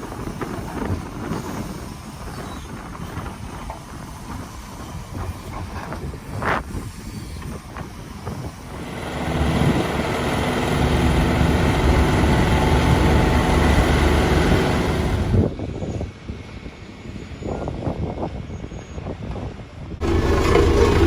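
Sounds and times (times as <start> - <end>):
heavy machinery engine running: 8.7 - 15.4, 20.0 - 21.0.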